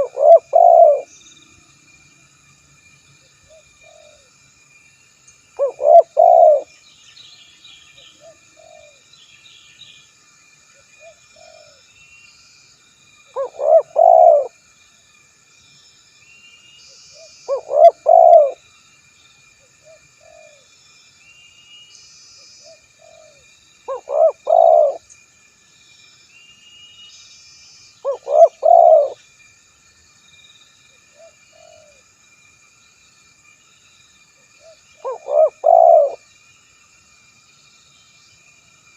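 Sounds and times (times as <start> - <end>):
dove cooing: 0.0 - 1.1, 5.6 - 6.7, 8.2 - 9.0, 13.4 - 14.5, 17.5 - 18.6, 23.0 - 25.0, 28.1 - 29.2, 31.2 - 32.0, 34.6 - 36.2.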